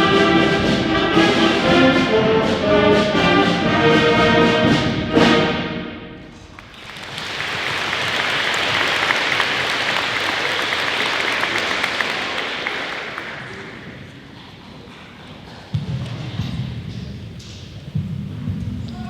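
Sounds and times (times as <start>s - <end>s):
brass band chord: 0.0s - 6.4s
audience applauding: 6.4s - 14.2s.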